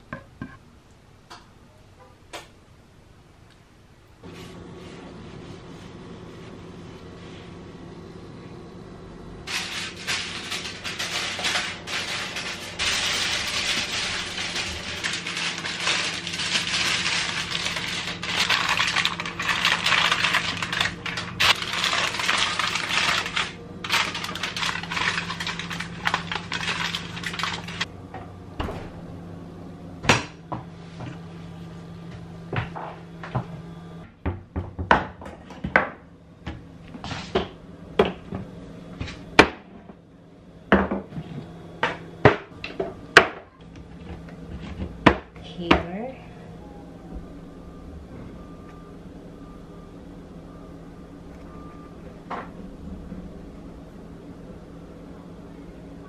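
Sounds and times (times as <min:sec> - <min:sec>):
steady low hum: 0:00.0 - 0:34.6, 0:35.4 - 0:56.0
aluminium foil crinkling: 0:09.5 - 0:27.9.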